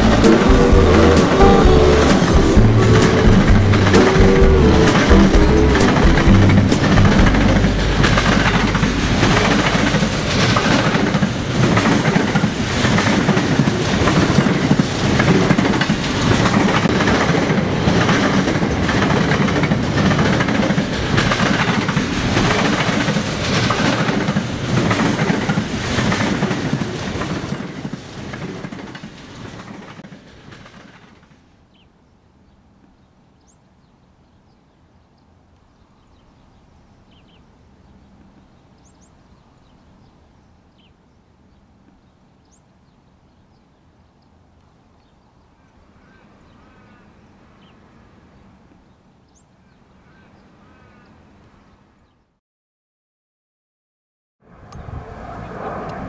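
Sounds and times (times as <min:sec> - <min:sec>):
train wheels clicking on rail joints: 0:00.0 - 0:31.8.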